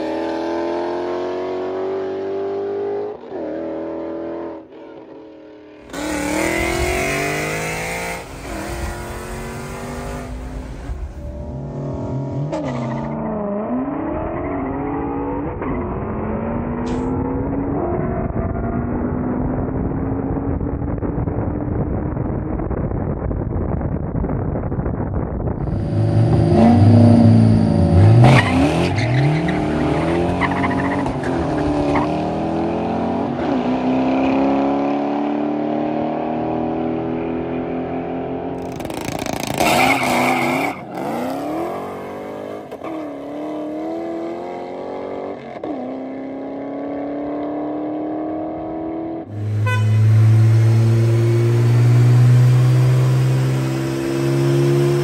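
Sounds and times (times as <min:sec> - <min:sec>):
car engine accelerating through gears: 0:05.8 - 0:20.5, 0:25.6 - 0:55.0
engine droning on a dyno: 0:49.3 - 0:55.0.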